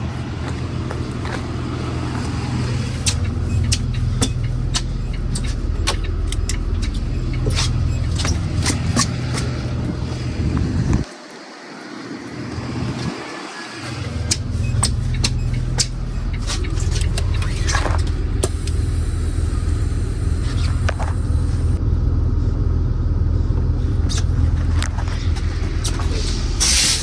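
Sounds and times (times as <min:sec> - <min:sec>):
bus engine idling: 0:00.0 - 0:27.0
sharp ticks: 0:03.0 - 0:09.5, 0:14.1 - 0:18.9.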